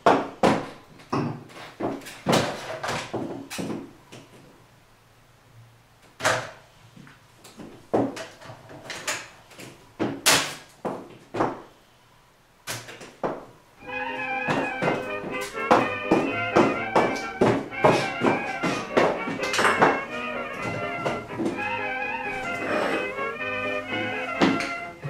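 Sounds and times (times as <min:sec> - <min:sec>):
irregular knocks and bangs: 0:14.4 - 0:21.7.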